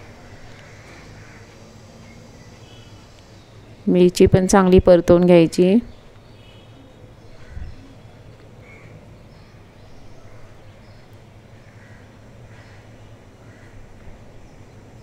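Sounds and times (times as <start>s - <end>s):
low steady hum: 0.0s - 15.0s
faint bird calls: 5.8s - 14.7s.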